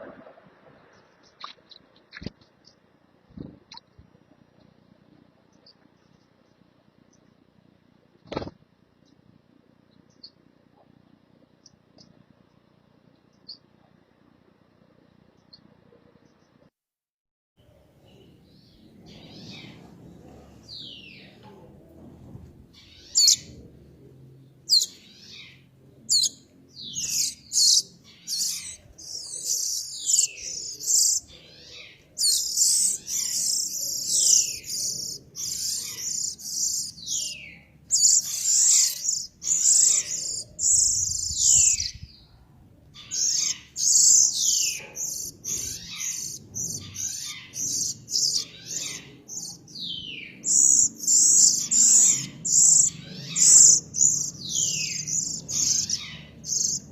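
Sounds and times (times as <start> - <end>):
songbird singing: 0.0 - 14.1, 15.1 - 16.7, 17.6 - 56.9
very high bird trills: 22.8 - 23.6, 24.7 - 42.0, 43.0 - 56.9.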